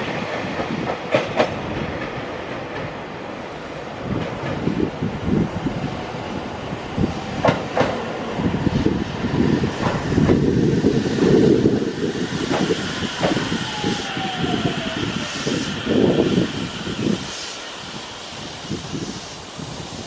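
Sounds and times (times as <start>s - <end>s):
train wheels clacking on rails: 0.0s - 3.1s, 4.0s - 4.9s, 7.3s - 20.0s.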